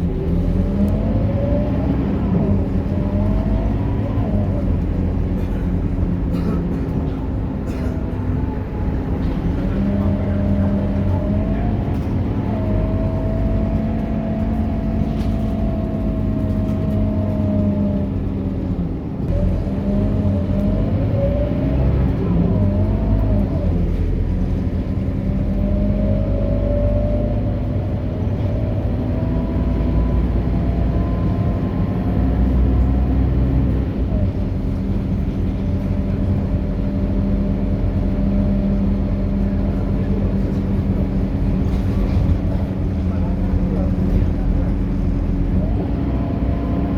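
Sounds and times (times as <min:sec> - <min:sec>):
bus engine drone with whine: 0:00.0 - 0:46.9.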